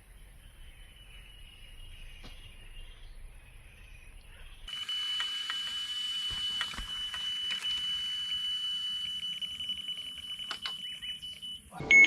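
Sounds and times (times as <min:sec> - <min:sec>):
scattered clicks: 0:04.7 - 0:11.7
bite alarm high tone: 0:08.0 - 0:12.0.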